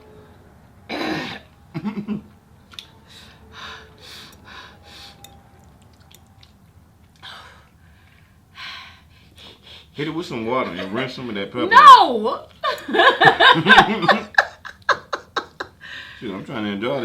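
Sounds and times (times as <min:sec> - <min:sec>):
chewing and breathing: 0:02.7 - 0:09.9.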